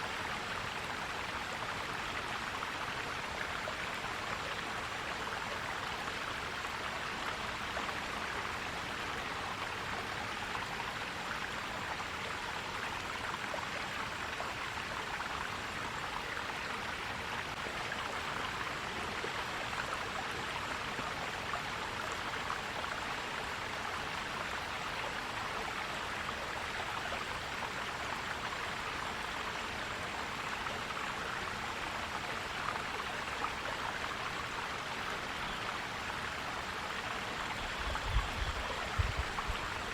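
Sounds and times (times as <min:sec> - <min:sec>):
stream water flowing over rocks: 0:00.0 - 0:39.9.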